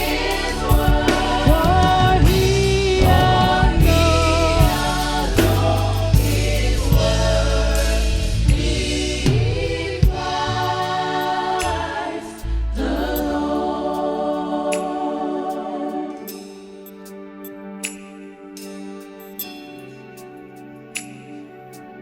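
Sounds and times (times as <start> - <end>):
drum hits: 0.0 - 10.7
bass: 0.0 - 14.0
gospel choir singing: 0.0 - 17.2.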